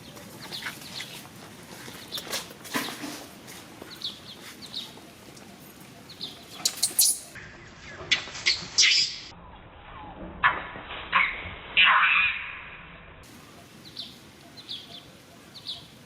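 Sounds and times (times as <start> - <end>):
animal squeaks and chirps: 6.6 - 7.4.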